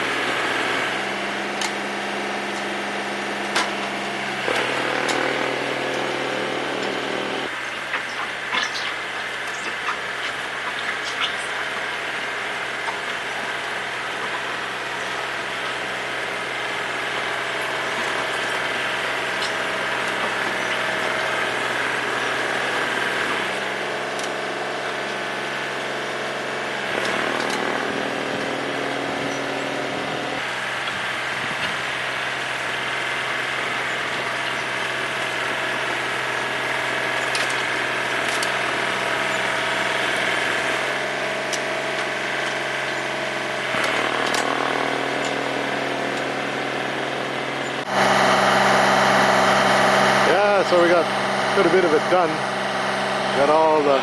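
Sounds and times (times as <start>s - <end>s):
snowblower engine running: 0.0s - 54.0s.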